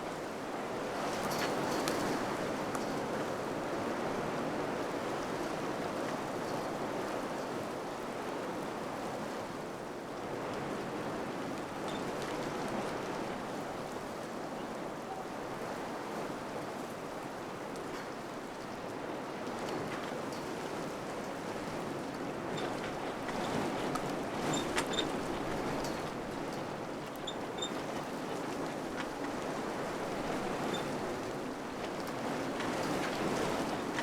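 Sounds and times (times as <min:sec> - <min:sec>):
faint light ticks: 0:01.2 - 0:03.0.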